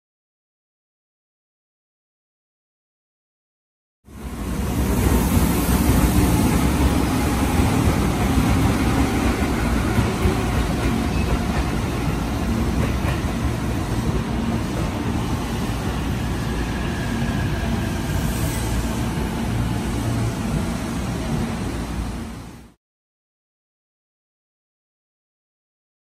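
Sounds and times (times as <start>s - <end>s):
train wheels rumbling on rails: 4.1s - 22.8s.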